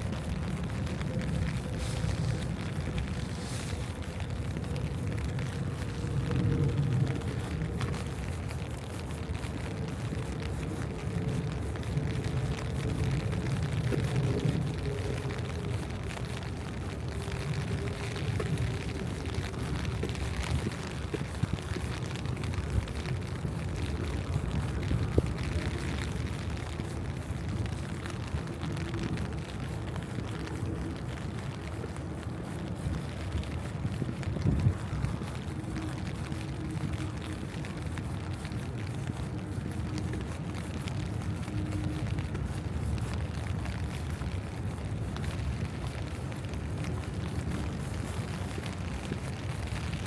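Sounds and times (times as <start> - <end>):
faint steady hum: 0.0 - 50.0
small ticks: 0.0 - 50.0
traffic rumble: 0.0 - 50.0.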